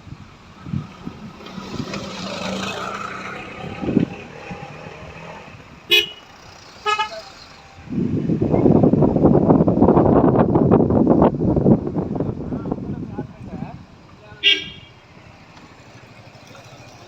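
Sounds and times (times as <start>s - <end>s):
road vehicle running noise: 0.0s - 17.0s
vehicle horn toots: 5.9s - 7.3s, 14.4s - 15.0s.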